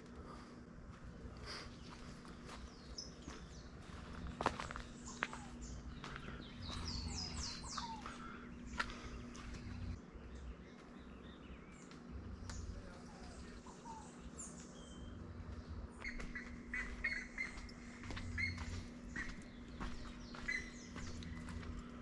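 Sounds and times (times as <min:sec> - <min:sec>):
steady low hum: 0:00.0 - 0:22.0
faint bird chirps: 0:16.0 - 0:22.0.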